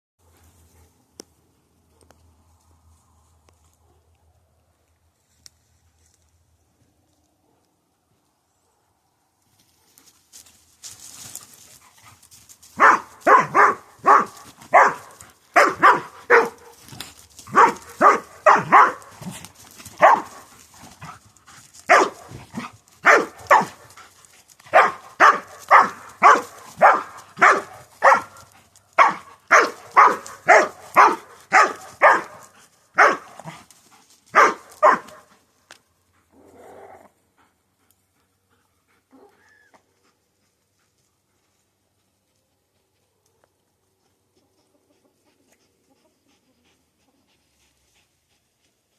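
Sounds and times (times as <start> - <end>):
dog barking in play: 12.8 - 16.8, 17.5 - 21.2, 21.9 - 23.9, 24.7 - 33.6, 34.3 - 35.3.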